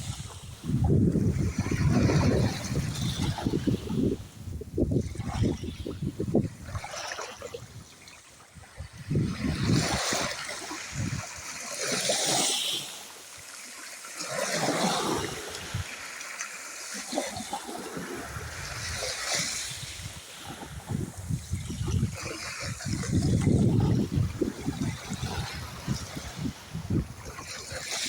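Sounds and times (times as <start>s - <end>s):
small waves washing in: 0.0s - 28.0s.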